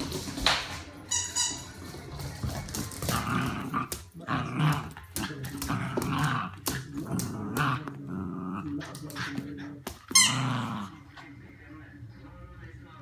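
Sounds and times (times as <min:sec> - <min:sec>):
dog growling: 0:03.1 - 0:11.4.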